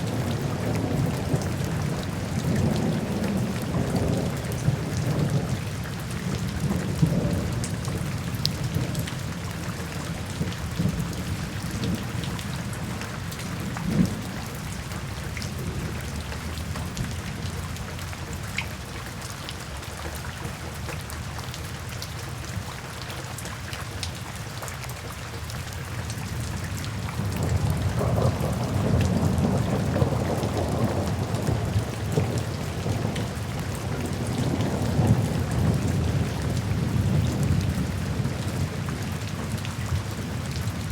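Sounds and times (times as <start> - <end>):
low rolling thunder: 0.0 - 17.6, 26.9 - 40.9
steady rain hiss: 0.0 - 40.9.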